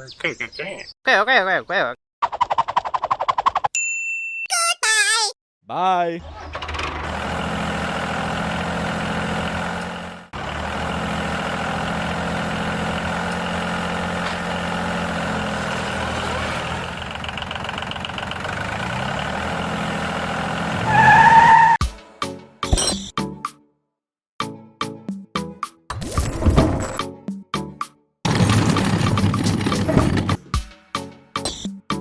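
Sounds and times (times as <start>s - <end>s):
tractor engine running: 6.2s - 20.9s, 28.3s - 30.4s.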